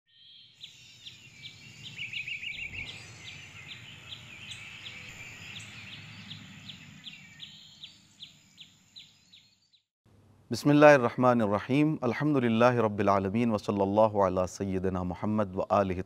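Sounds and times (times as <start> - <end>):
bird trill: 0.1 - 9.9
birds chirping: 0.1 - 9.9
low steady background noise: 10.1 - 16.0.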